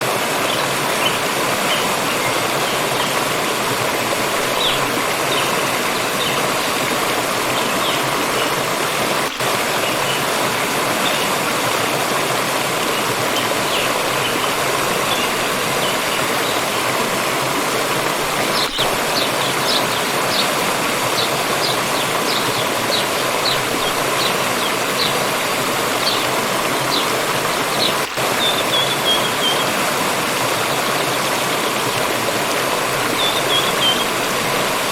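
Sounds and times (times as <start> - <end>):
water flowing in a stream: 0.0 - 34.9
small birds chirping: 18.4 - 29.8, 33.1 - 34.2.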